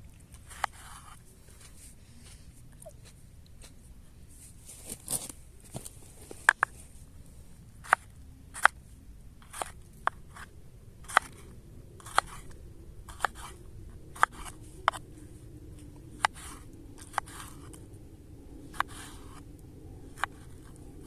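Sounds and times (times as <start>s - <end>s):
knife cutting crisp food: 11.1s - 12.5s.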